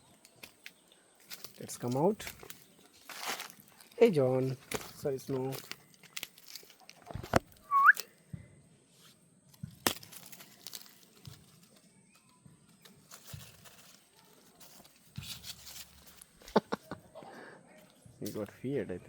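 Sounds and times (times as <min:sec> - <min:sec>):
faint rustling: 0:10.0 - 0:18.6.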